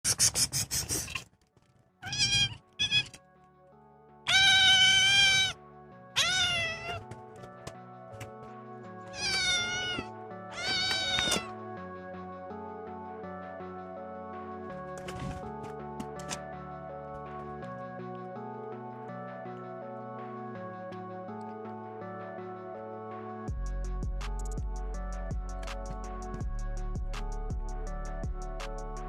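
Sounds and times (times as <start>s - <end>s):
background music: 1.8s - 29.0s
cat meowing: 2.0s - 3.2s, 4.3s - 5.6s, 6.2s - 7.0s, 9.1s - 11.5s.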